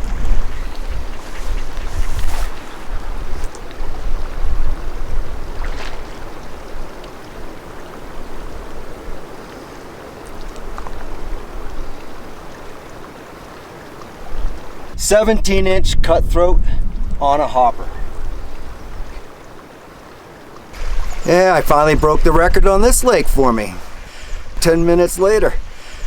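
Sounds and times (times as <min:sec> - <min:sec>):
wind buffeting microphone: 0:00.0 - 0:09.4, 0:14.2 - 0:19.3, 0:20.8 - 0:26.0
lake water washing: 0:00.0 - 0:26.0.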